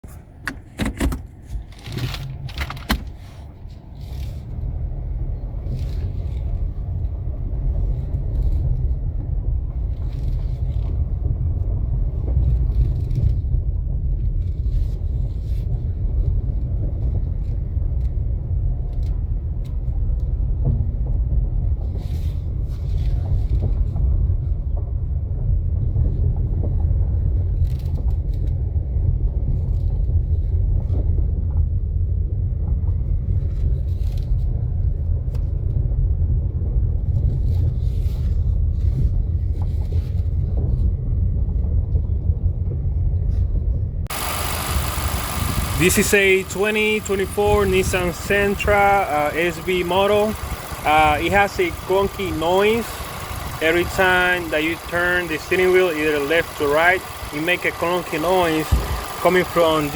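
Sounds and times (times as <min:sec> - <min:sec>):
car low rumble: 0:00.0 - 0:59.9
sharp knocks and clicks: 0:00.1 - 0:03.3.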